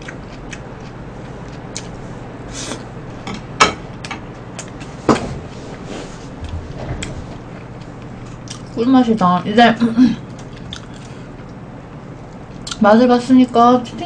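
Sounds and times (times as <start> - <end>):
chewing crunchy fried fish: 0.0 - 2.0, 7.6 - 8.8, 10.2 - 11.7
steady low hum: 0.0 - 14.0.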